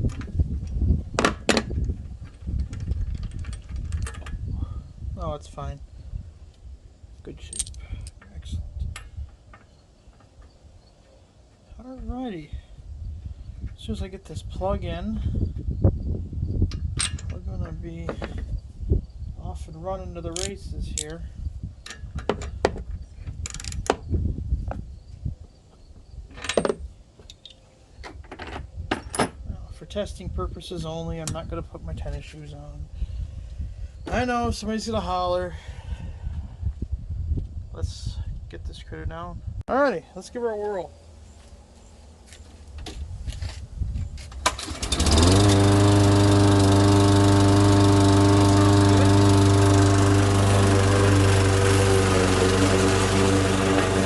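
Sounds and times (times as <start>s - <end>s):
lawn mower engine running: 44.4s - 54.0s.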